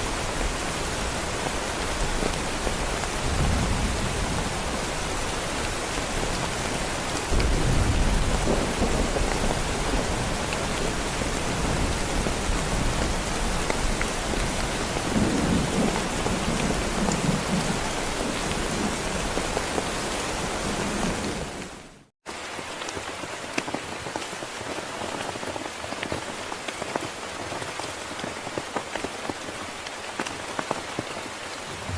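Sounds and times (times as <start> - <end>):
heavy rain: 0.0 - 31.9
rolling thunder: 3.2 - 5.3, 7.3 - 19.2.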